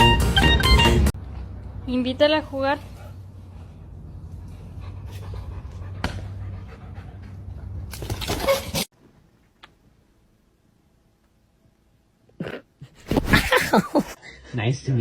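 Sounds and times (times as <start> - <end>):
dog panting: 2.4 - 7.8.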